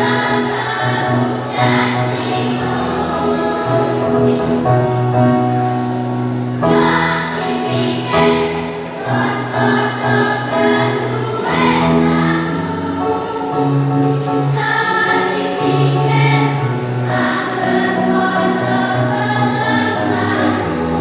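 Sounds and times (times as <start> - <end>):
children's choir singing: 0.0 - 21.0.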